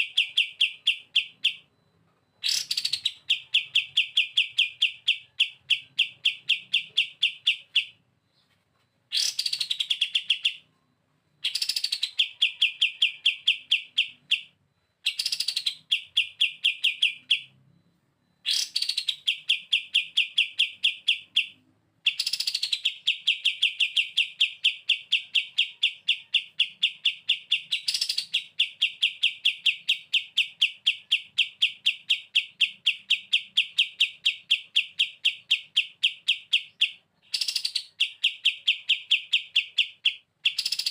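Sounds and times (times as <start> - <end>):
songbird rattling trill: 9.1 - 10.6, 11.4 - 17.4, 18.4 - 40.9.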